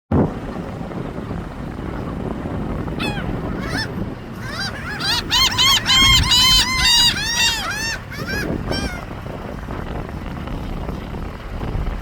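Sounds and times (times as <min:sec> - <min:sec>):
seagulls calling: 0:02.9 - 0:09.1.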